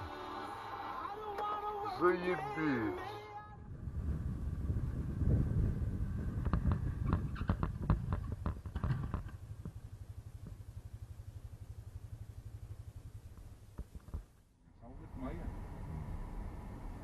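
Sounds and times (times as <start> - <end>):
vehicle engine and road rumble: 0.0 - 17.0
sharp knocks and clatter: 6.4 - 9.8, 13.3 - 14.4.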